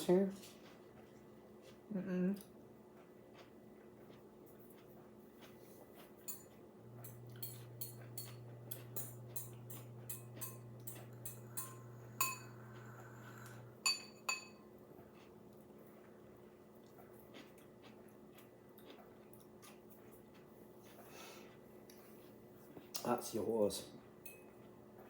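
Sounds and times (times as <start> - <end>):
steady low hum: 0.0 - 16.9
dishes and cutlery clinking: 6.2 - 14.7, 24.2 - 24.6.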